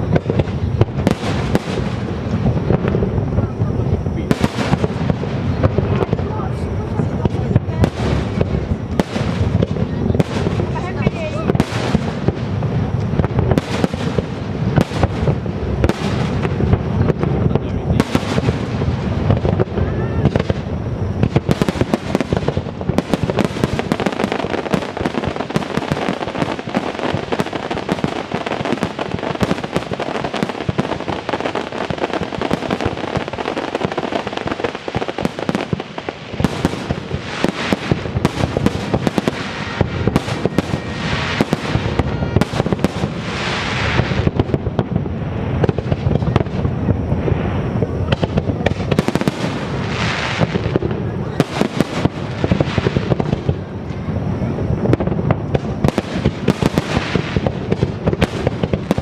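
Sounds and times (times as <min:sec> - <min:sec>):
crackling hiss: 0:00.0 - 0:59.0
fireworks bangs and crackles: 0:00.0 - 0:59.0.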